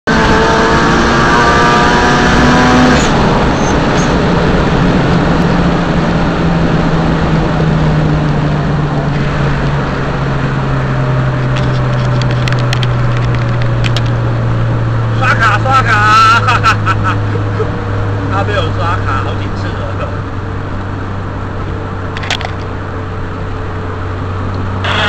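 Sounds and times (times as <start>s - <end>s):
low engine hum: 0.0s - 25.0s
car engine revving hard: 0.1s - 11.5s
wind and tyre noise: 0.1s - 25.0s.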